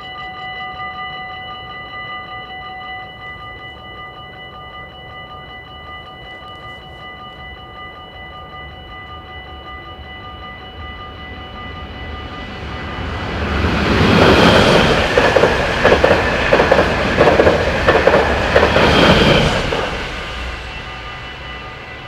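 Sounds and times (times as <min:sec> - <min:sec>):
level crossing warning bell: 0:00.0 - 0:22.0
train wheels clickety-clack: 0:12.2 - 0:21.5.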